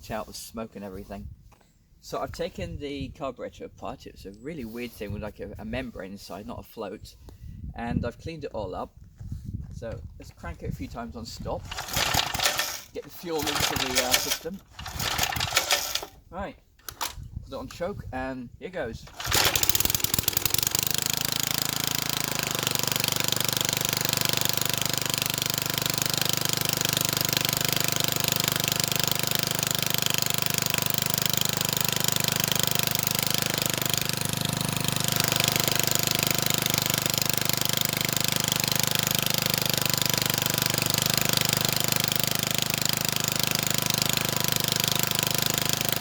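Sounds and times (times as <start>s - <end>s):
small engine running: 11.6s - 16.2s, 16.8s - 17.2s, 19.1s - 46.0s.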